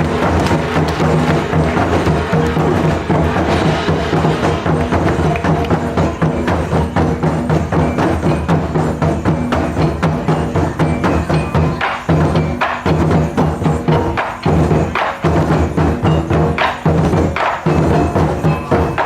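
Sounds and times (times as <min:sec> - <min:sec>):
taiko drums playing: 0:00.0 - 0:19.0.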